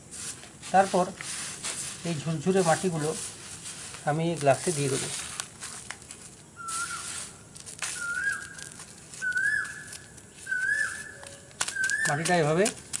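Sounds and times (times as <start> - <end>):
hands scooping soil: 0.0 - 13.0
bird whistled call: 6.6 - 7.3, 7.9 - 12.5.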